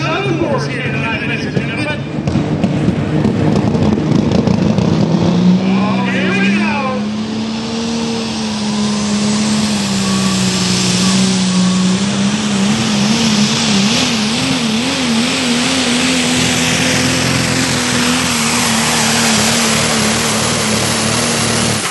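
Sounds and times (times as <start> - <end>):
engine roaring under load: 0.0 - 21.9.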